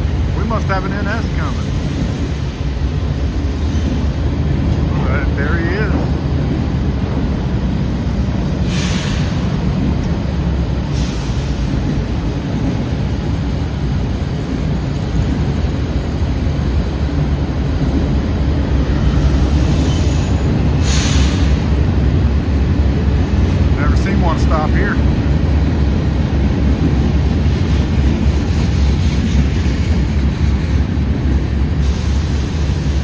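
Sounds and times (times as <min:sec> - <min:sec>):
freight train rumbling on rails: 0:00.0 - 0:33.0.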